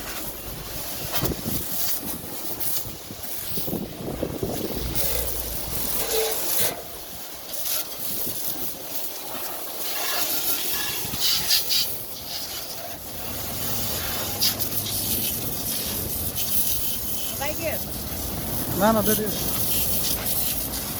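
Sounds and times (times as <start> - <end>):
water jet spraying a vehicle: 0.0 - 20.9.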